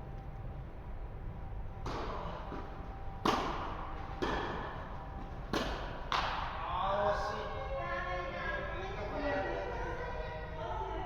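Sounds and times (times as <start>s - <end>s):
tennis ball impacts: 1.8s - 6.5s.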